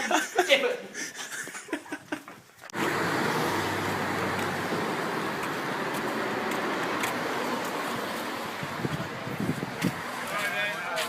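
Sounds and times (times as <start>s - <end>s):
people laughing and chatting: 0.0s - 2.4s.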